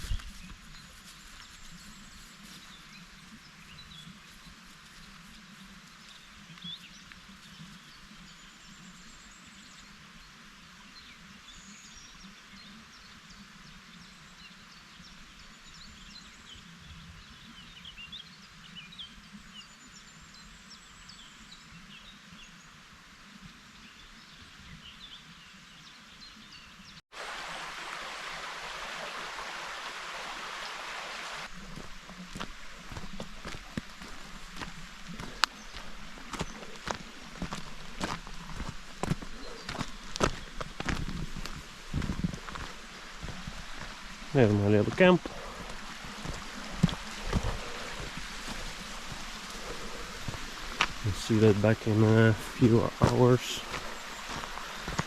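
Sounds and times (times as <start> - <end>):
steady outdoor hiss: 0.0 - 55.0
small birds chirping and singing: 32.3 - 55.0.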